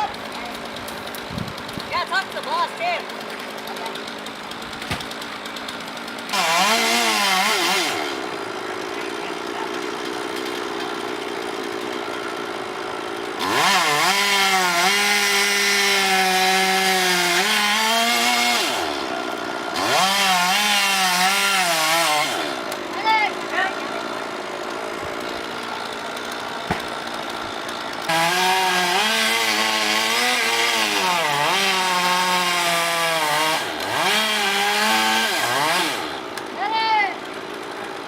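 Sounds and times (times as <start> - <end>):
chainsaw revving: 0.0 - 38.0.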